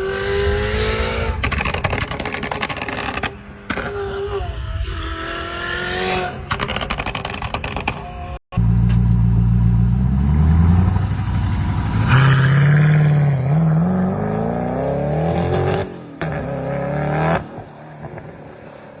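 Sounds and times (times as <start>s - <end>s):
sports car engine revving: 0.0s - 8.4s.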